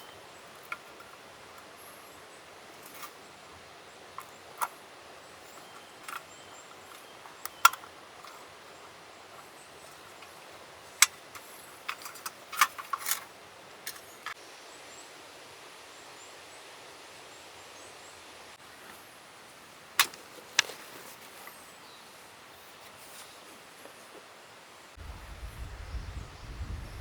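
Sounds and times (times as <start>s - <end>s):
camping gear clicks and knocks: 0.0s - 14.4s, 19.9s - 21.7s
forest and river ambience hiss: 0.0s - 27.0s.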